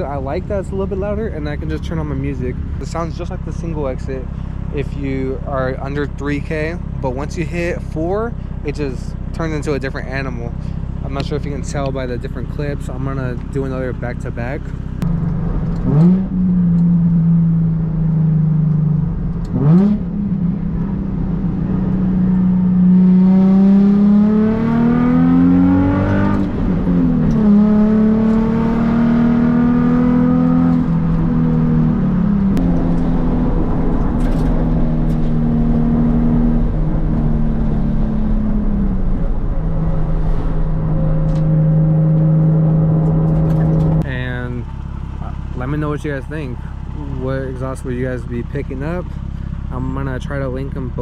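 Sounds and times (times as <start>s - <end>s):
car engine revving and accelerating: 14.4s - 44.1s.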